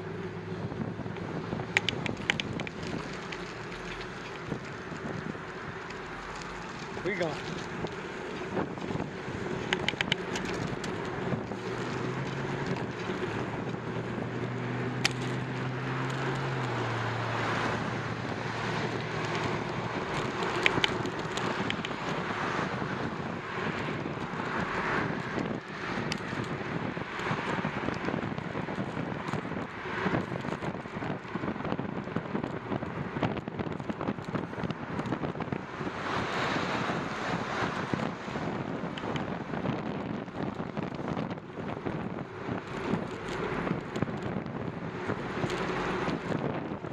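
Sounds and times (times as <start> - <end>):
wind buffeting microphone: 0.0 - 46.9
sharp clicks: 1.1 - 4.5, 9.6 - 11.1, 18.9 - 22.1.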